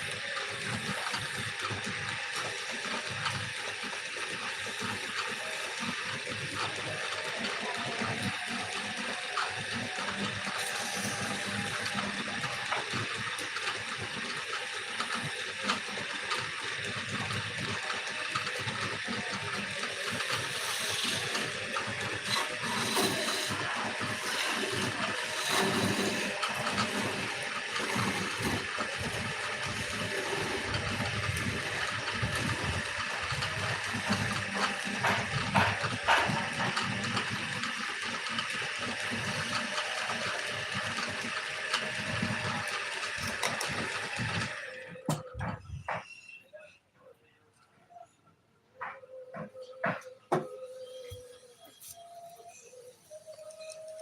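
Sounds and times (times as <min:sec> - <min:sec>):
lathe tool scraping wood: 0:06.8 - 0:13.5, 0:17.0 - 0:44.7.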